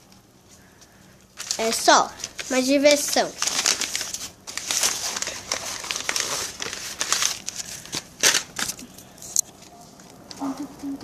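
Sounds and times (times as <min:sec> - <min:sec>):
paper crumpling and crinkling: 0:01.4 - 0:10.2.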